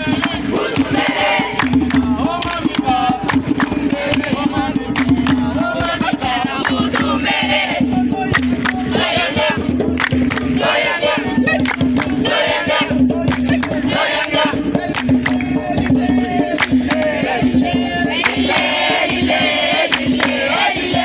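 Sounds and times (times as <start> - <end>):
group singing and chanting: 0.0 - 21.0
sharp percussive strikes: 0.0 - 21.0.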